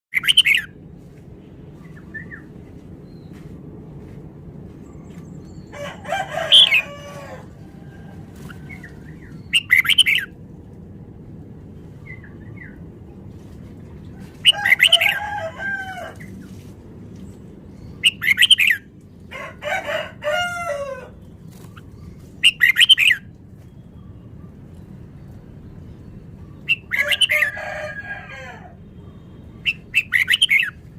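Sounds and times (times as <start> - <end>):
bird singing: 0.1 - 0.7, 8.5 - 10.4, 17.8 - 18.9, 21.2 - 27.8, 29.0 - 30.8
low steady hum: 0.2 - 30.9.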